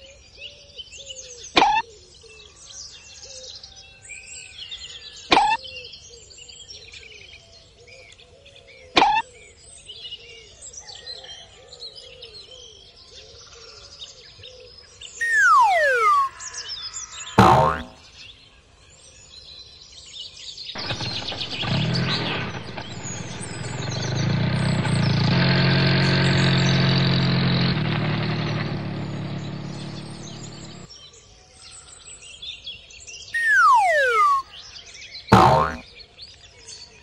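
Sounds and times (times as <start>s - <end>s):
high whistle sliding down: 15.2s - 16.4s, 33.4s - 34.4s.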